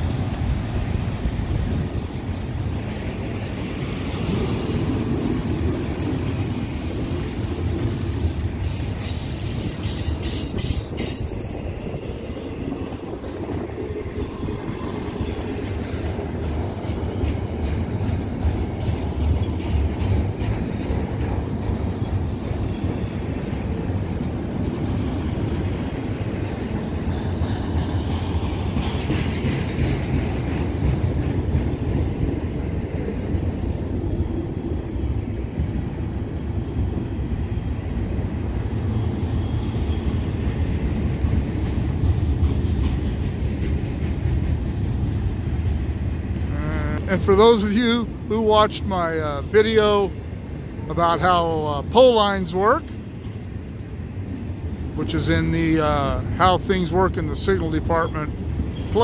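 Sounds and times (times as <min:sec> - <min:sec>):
train wheels rumbling on rail: 0:00.0 - 0:59.0
high wheel squeal: 0:04.8 - 0:11.8, 0:39.0 - 0:40.4
wheels clicking over rail joints: 0:12.8 - 0:34.0, 0:39.5 - 0:47.3.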